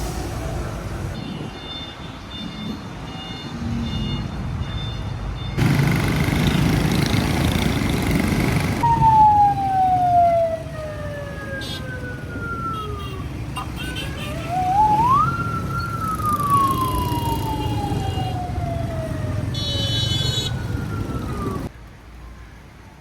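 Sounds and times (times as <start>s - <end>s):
busy street noise: 0.0s - 23.0s
siren winding down in pitch: 8.8s - 13.2s, 14.3s - 21.7s.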